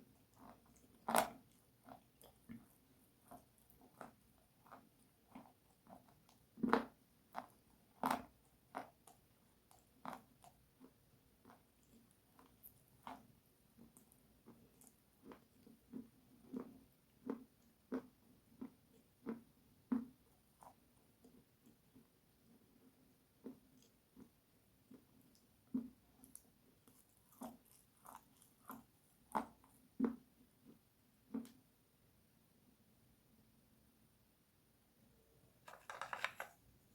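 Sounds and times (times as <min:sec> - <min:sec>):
crunchy bites and chewing: 0:25.8 - 0:30.2.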